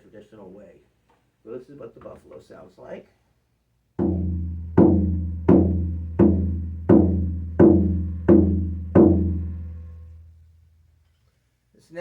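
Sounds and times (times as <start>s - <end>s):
frame drum beating: 4.0s - 10.2s.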